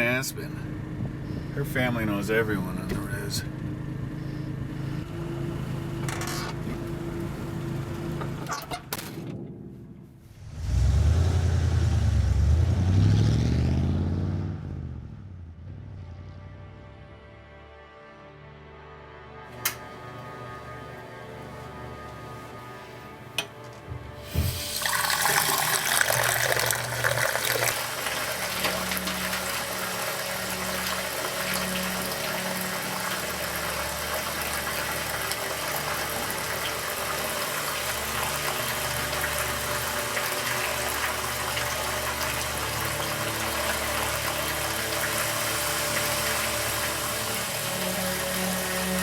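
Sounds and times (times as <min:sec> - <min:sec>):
music with low sustained tones: 0:15.3 - 0:49.0
water rushing: 0:24.3 - 0:49.0.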